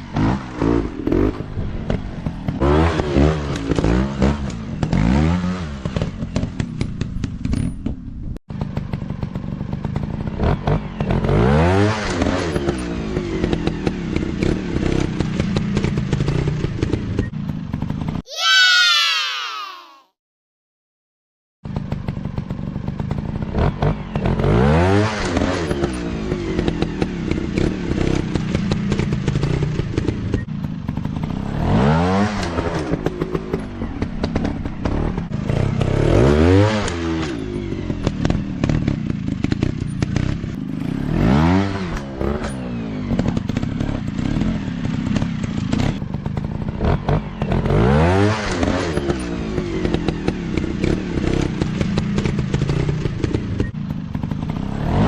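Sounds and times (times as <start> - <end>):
dirt bike engines revving: 23.0 - 55.0.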